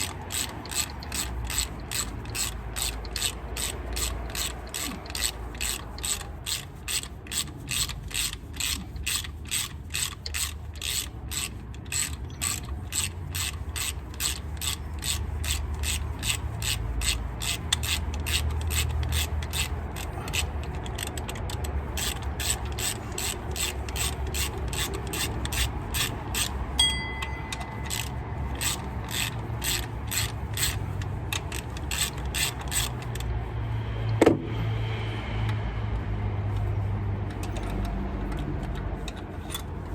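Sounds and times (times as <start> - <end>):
ratchet wrench clicking: 0.0 - 33.4, 36.5 - 39.9
low steady hum: 26.6 - 31.8.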